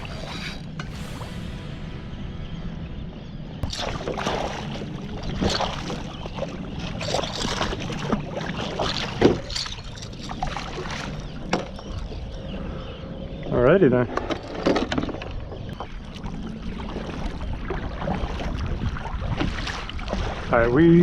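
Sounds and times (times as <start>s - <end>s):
steady low rumble: 0.0s - 13.6s
water splashing around kayak: 3.6s - 12.9s, 14.1s - 21.0s.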